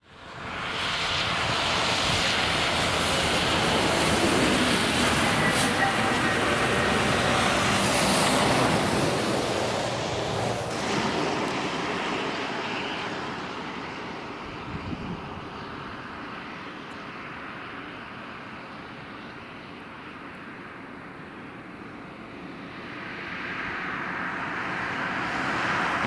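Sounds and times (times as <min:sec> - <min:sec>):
diesel locomotive idling drone: 0:00.1 - 0:16.8.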